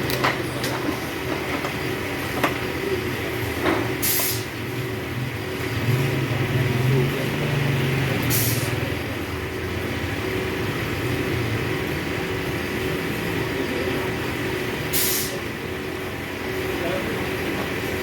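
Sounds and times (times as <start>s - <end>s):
short hisses: 4.0s - 4.5s, 8.3s - 8.7s, 15.0s - 15.4s.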